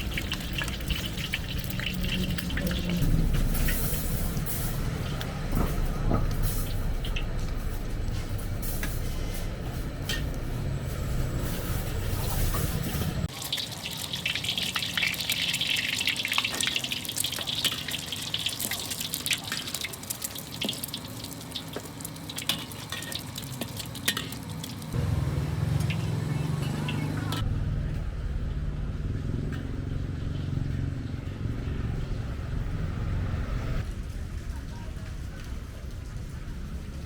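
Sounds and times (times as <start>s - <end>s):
low rumble with clicks: 0.0s - 13.3s, 27.4s - 37.0s
utensils and dishes clinking: 21.6s - 24.8s.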